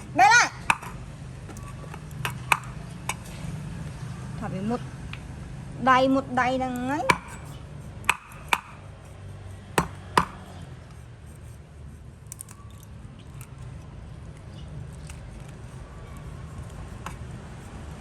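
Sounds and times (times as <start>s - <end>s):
sharp knocks: 0.6s - 1.0s, 7.1s - 7.5s, 8.1s - 8.8s, 9.8s - 10.6s.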